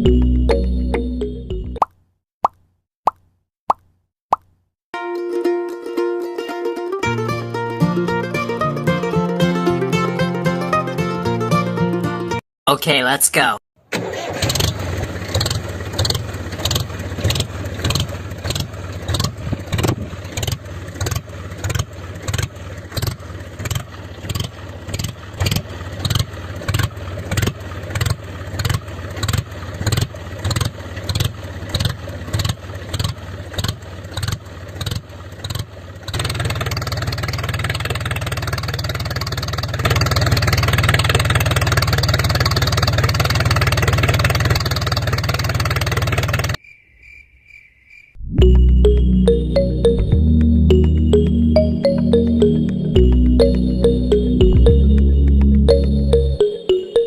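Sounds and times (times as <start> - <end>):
small engine chugging: 14.0 - 46.6.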